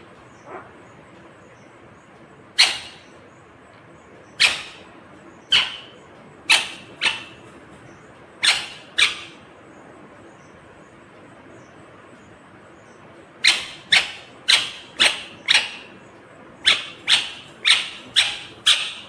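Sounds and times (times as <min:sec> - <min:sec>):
parrot shrieking: 0:00.4 - 0:00.7, 0:02.6 - 0:03.1, 0:04.4 - 0:04.9, 0:05.5 - 0:05.9, 0:06.5 - 0:07.5, 0:08.4 - 0:09.4, 0:13.4 - 0:16.0, 0:16.7 - 0:19.0.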